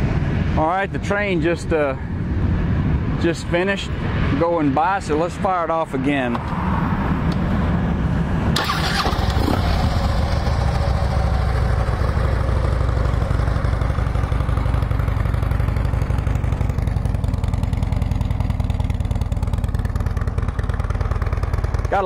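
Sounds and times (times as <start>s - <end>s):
motorcycle engine starting and idling: 8.5s - 22.0s.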